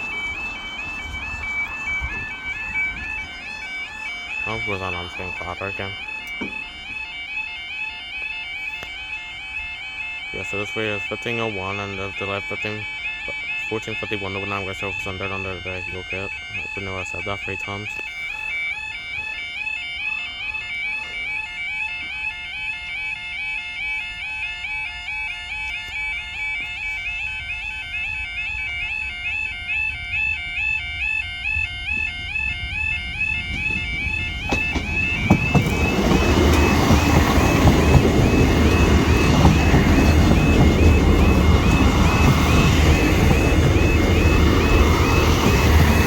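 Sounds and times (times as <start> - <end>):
train rushing past: 0.0 - 7.0, 31.4 - 46.0
level crossing alarm warbling: 0.0 - 46.0.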